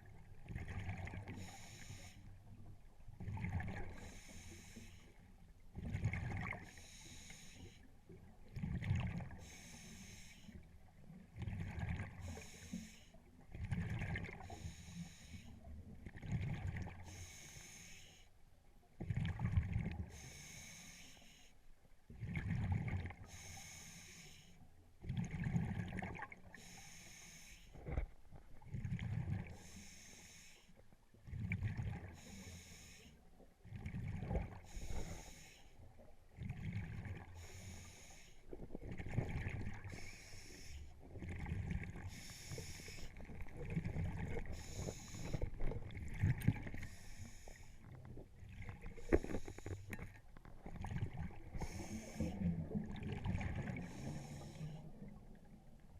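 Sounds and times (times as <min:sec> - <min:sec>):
regulator inhale hiss: 0:01.3 - 0:02.3, 0:03.9 - 0:05.2, 0:06.6 - 0:07.9, 0:09.4 - 0:10.6, 0:12.2 - 0:13.2, 0:14.4 - 0:15.6, 0:17.0 - 0:18.3, 0:20.1 - 0:21.6, 0:23.2 - 0:24.6, 0:26.5 - 0:27.8, 0:29.5 - 0:30.8, 0:32.1 - 0:33.2, 0:34.6 - 0:35.8, 0:37.4 - 0:38.5, 0:39.8 - 0:41.0, 0:42.1 - 0:43.3, 0:44.4 - 0:45.8, 0:46.7 - 0:47.9, 0:48.9 - 0:50.1, 0:51.5 - 0:52.5, 0:53.7 - 0:54.9.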